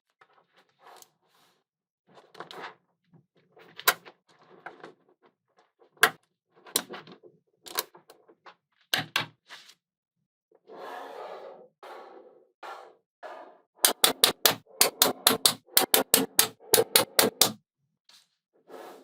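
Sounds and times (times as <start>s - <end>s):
magnetic balls clicking together: 13.9s - 17.6s.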